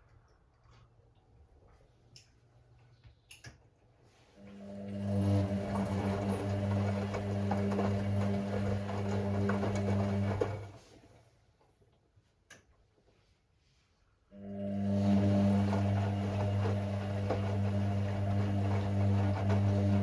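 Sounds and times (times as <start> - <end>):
washing machine motor humming: 4.4 - 11.0, 14.4 - 20.0
water and laundry churning: 4.6 - 11.0, 14.4 - 20.0.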